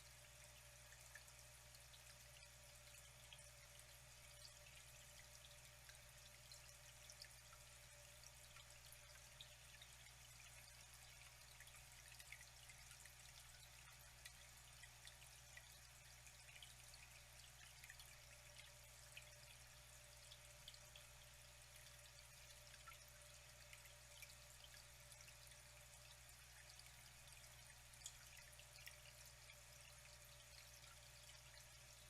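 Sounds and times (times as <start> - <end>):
low steady hum: 0.0 - 32.0
water trickling and dripping: 0.0 - 32.0.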